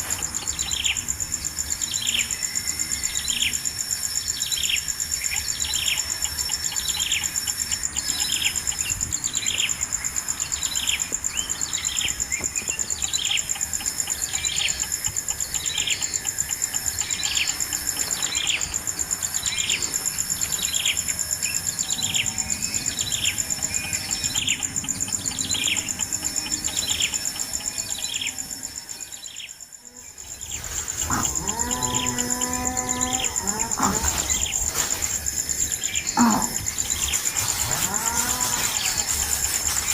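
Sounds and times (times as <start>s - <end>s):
high insect drone: 0.0s - 39.9s
low drawn-out animal call: 31.0s - 34.4s.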